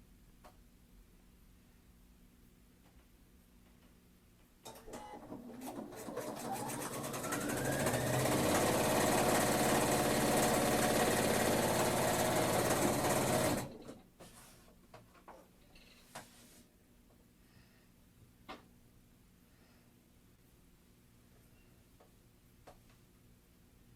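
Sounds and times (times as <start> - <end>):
sewing machine stitching: 4.7 - 14.0.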